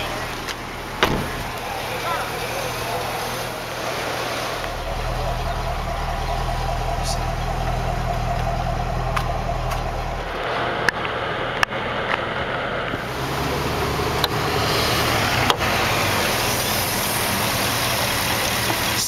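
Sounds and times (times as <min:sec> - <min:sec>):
car engine idling: 0:00.0 - 0:19.0
car hood clicks and knocks: 0:01.0 - 0:01.5.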